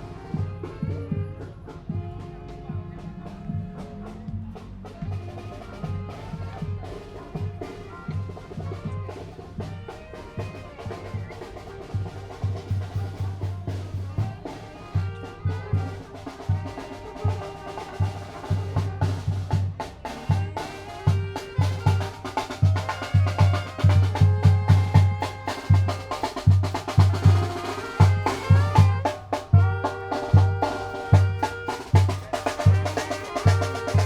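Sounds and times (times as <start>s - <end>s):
bass drum and snare beat: 0.0s - 34.0s
brass and reed melody: 0.0s - 34.0s.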